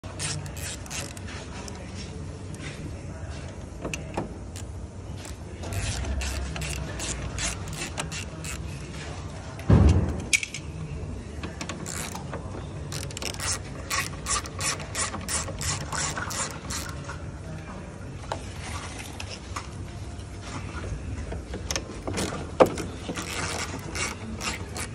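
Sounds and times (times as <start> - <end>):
heavy thump: 9.7 - 10.3.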